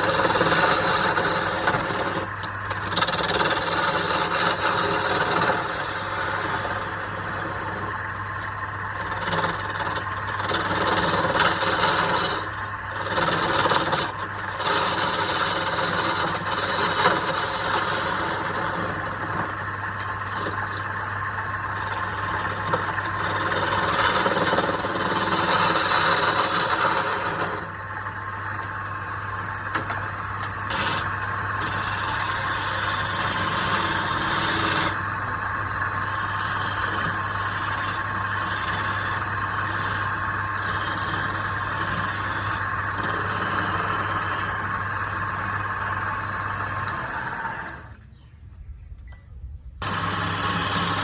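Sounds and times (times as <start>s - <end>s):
tool scraping spinning wood: 0.0s - 48.0s, 49.8s - 51.0s
wood lathe motor hum: 0.0s - 48.0s, 49.8s - 51.0s.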